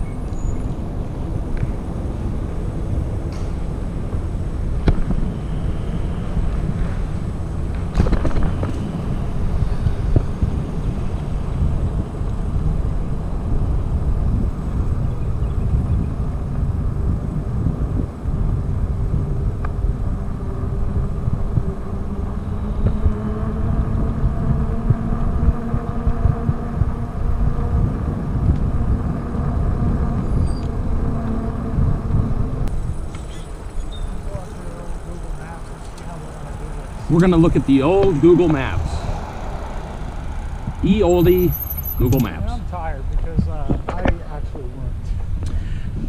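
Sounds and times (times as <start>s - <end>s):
wind buffeting microphone: 0.0s - 46.0s
faint droning tone: 29.4s - 43.0s.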